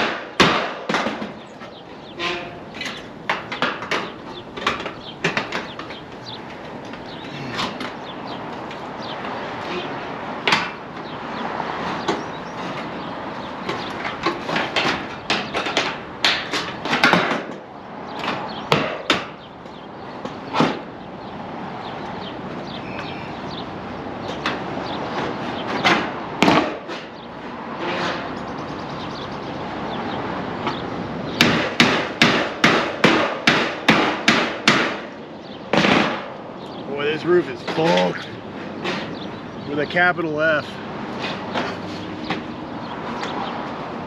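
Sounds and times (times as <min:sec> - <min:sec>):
hammer blows on roof: 0:00.0 - 0:01.4, 0:13.7 - 0:17.6, 0:18.2 - 0:19.4, 0:25.7 - 0:27.1, 0:31.4 - 0:36.3.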